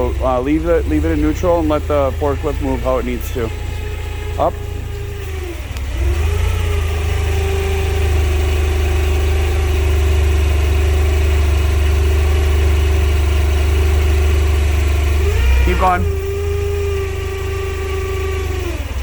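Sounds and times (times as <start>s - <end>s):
steady whine: 0.0s - 6.3s, 15.2s - 16.6s
forklift engine revving: 0.0s - 19.0s.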